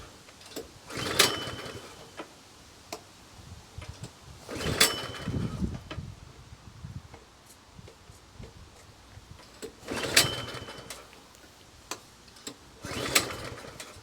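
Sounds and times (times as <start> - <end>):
recoil starter rope pull: 0.4 - 2.3, 3.9 - 6.0, 9.4 - 14.0.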